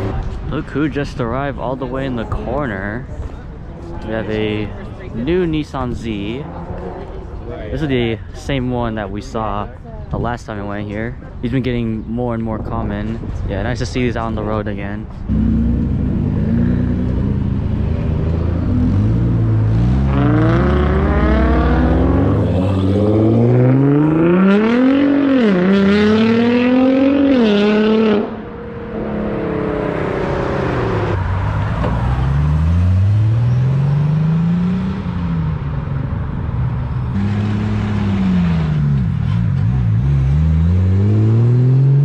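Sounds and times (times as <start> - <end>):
car engine revving: 15.2 - 42.0.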